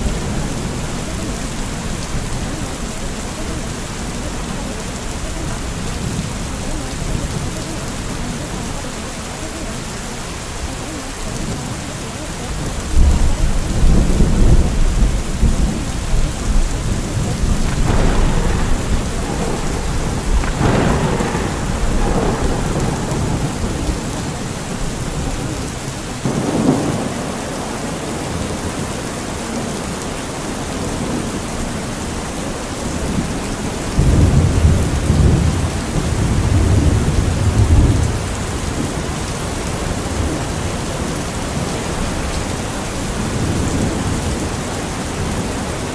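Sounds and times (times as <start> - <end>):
steady rain: 0.0 - 45.9
rolling thunder: 12.4 - 28.8, 32.8 - 45.6.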